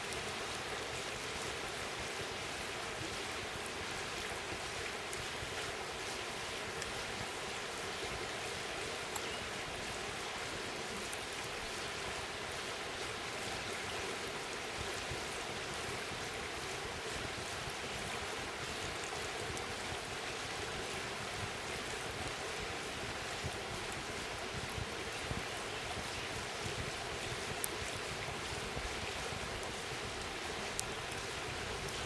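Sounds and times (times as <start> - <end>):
wood crackling and popping: 26.8 - 32.0.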